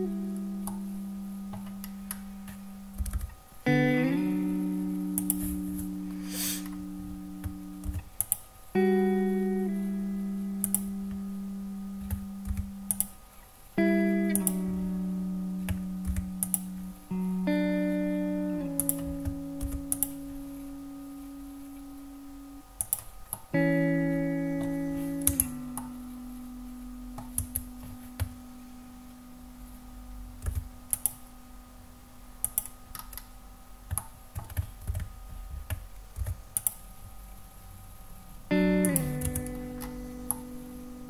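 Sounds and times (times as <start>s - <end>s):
slow guitar chords: 0.0s - 33.3s, 38.2s - 41.0s
computer mouse clicks: 33.9s - 36.8s.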